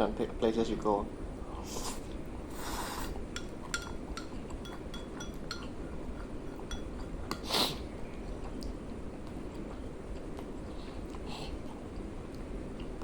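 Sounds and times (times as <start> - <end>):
cutlery clinking against a dish: 3.3 - 7.5.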